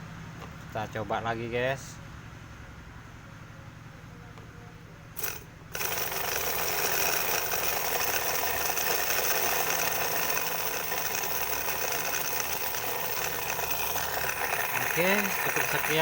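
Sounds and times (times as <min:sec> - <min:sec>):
fast mechanical rattle: 0:05.2 - 0:16.0.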